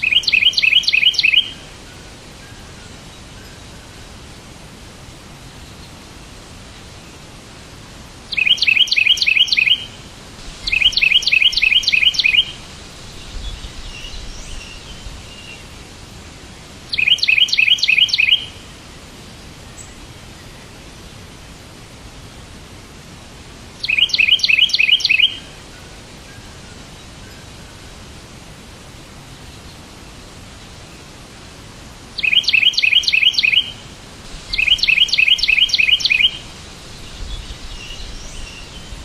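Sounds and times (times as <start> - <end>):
bird chirping rapidly: 0.0 - 1.6, 8.3 - 9.9, 10.6 - 12.6, 16.9 - 18.6, 23.8 - 25.5, 32.2 - 33.8, 34.5 - 39.0
background hiss: 0.0 - 39.0.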